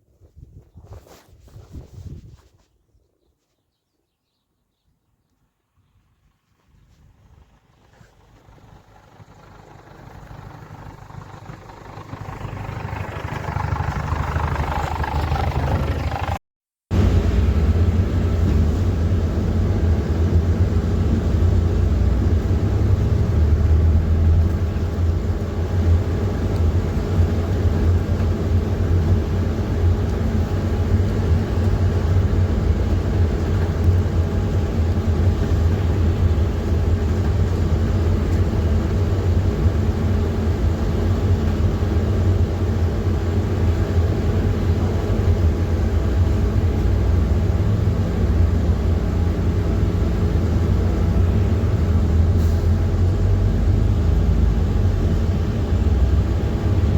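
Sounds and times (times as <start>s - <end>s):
bus diesel engine rumbling: 5.6s - 56.9s.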